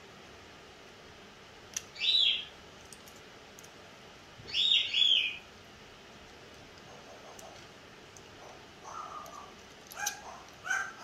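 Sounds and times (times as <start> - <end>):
pet bird chirping: 1.9 - 2.5, 4.5 - 5.5, 8.4 - 11.0.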